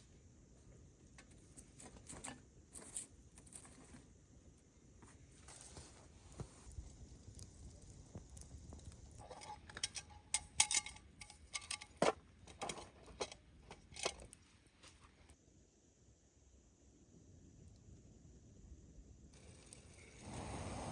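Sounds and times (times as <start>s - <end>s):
small irregular clicks and knocks: 7.3s - 14.5s.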